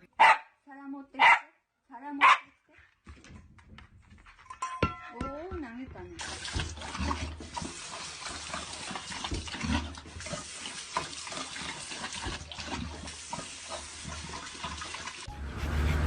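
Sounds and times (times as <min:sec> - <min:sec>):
small water splashes: 0:06.2 - 0:15.3
water hissing: 0:06.2 - 0:16.0.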